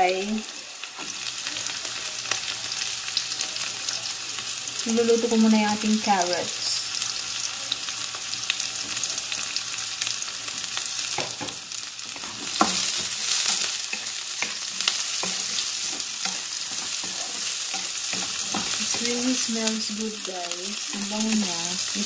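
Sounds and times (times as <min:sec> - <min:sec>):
vegetables sizzling in hot oil: 0:00.0 - 0:22.0
spatula scraping a wok: 0:12.0 - 0:19.6.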